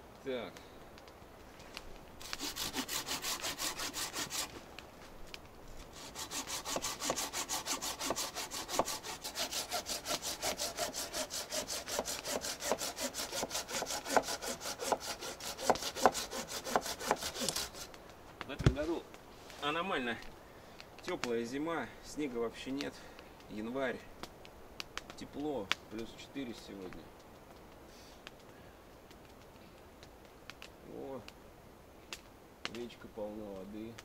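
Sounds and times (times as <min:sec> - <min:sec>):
hand saw cutting firewood: 0:02.2 - 0:04.6, 0:05.9 - 0:18.0.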